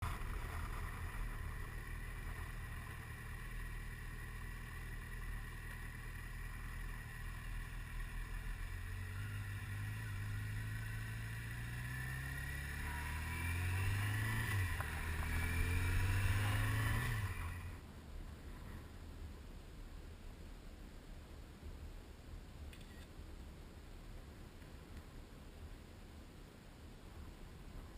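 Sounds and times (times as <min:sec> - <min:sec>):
motorcycle engine accelerating: 0:00.0 - 0:17.8
wind and road noise rumble: 0:00.0 - 0:27.9.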